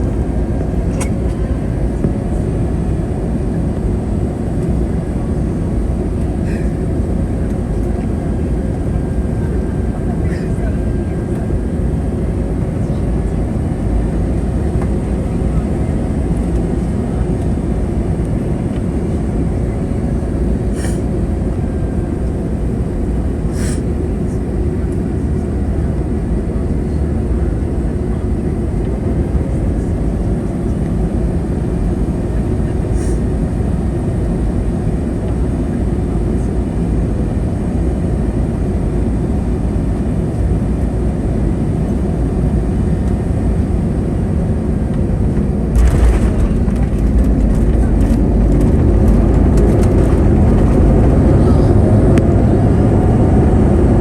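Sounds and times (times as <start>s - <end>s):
airliner cabin rumble: 0.0s - 54.0s
sudden air rush: 45.8s - 51.8s.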